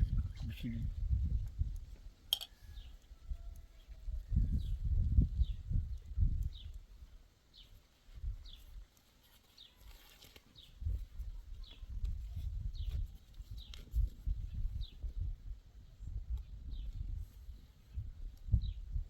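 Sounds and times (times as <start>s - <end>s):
small bird chirping: 0.0s - 15.1s.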